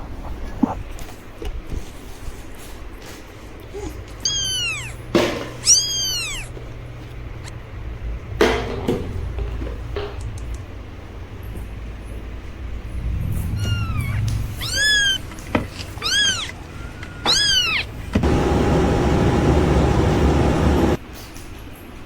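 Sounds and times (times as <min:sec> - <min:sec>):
kitten meowing: 0:03.8 - 0:06.8, 0:13.5 - 0:18.2
loud steady hiss with hum: 0:17.6 - 0:21.0.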